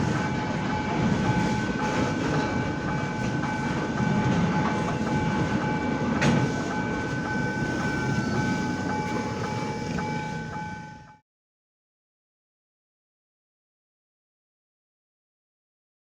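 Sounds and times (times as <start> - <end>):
train wheels clicking over rail joints: 0.0 - 10.8.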